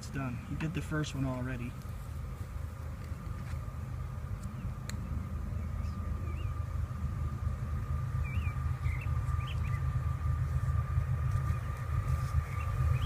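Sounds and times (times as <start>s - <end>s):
faint high whine: 0.0s - 13.0s
low rumble: 0.0s - 13.0s
bird chirps: 4.5s - 6.7s, 8.1s - 10.0s, 11.4s - 13.0s.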